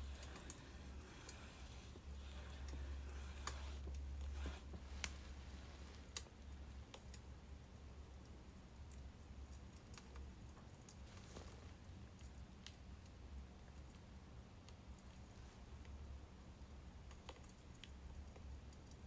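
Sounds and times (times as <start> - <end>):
logs crackling in fire: 0.0 - 7.3
low steady hum: 0.0 - 19.0.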